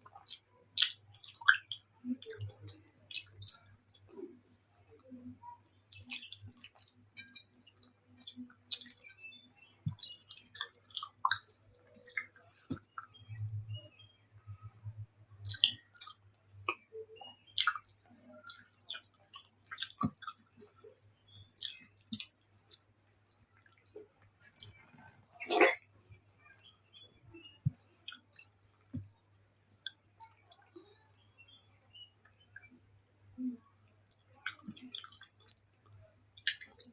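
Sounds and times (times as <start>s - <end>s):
wet chewing of soft food: 0.0s - 4.1s, 5.9s - 13.4s, 15.4s - 16.9s, 17.5s - 25.8s, 27.6s - 30.6s, 33.4s - 36.9s
lip smacks: 0.1s - 3.9s, 5.9s - 7.4s, 8.2s - 9.2s, 9.9s - 13.2s, 15.4s - 16.8s, 17.6s - 25.8s, 27.7s - 30.4s, 36.4s - 36.9s.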